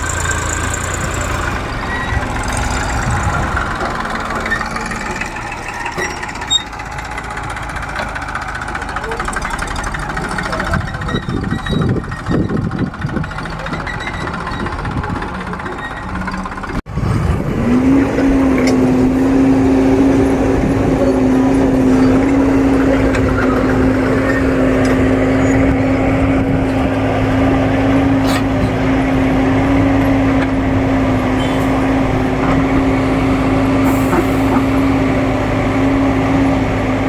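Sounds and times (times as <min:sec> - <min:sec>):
heavy machinery diesel engine: 0:00.0 - 0:37.0.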